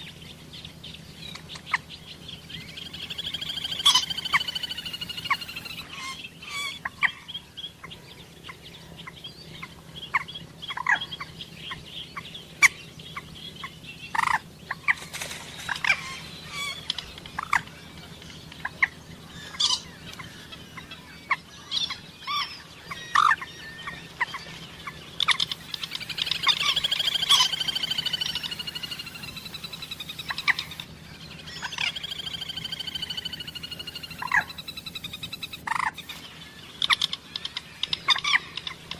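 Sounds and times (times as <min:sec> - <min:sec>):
moorhens calling: 0:00.0 - 0:38.9
rapid bird chattering: 0:01.4 - 0:07.2, 0:15.6 - 0:36.2.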